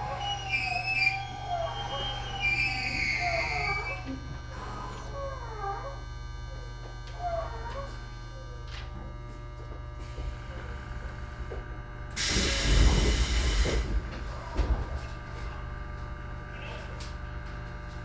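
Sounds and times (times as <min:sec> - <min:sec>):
compressed air hiss: 0:12.2 - 0:14.0.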